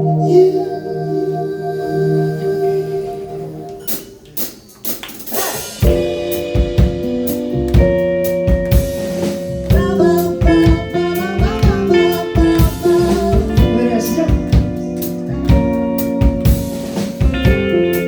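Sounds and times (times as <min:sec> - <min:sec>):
drum kit beat: 0:03.8 - 0:18.0
guitar: 0:05.8 - 0:18.0
held chords: 0:05.8 - 0:18.0.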